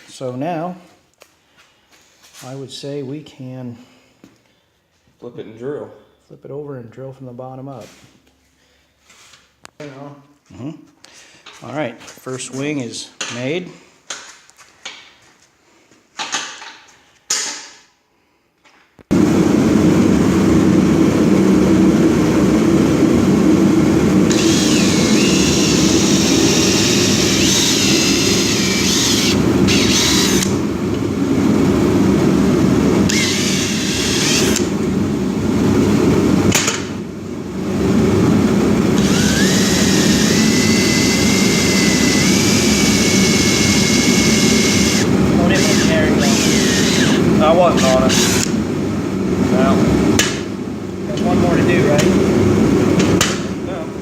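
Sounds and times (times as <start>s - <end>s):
power drill drilling: 24.3s - 30.6s, 33.1s - 34.7s, 39.0s - 48.5s.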